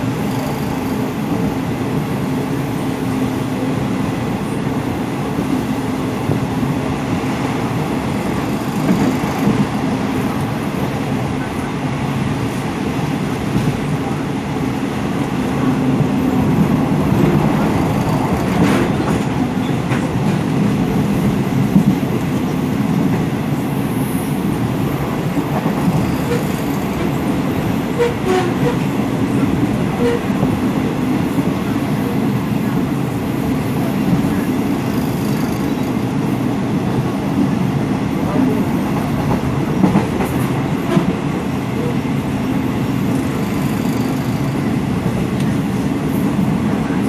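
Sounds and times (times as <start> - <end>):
train rumbling on rails: 0.0 - 47.0.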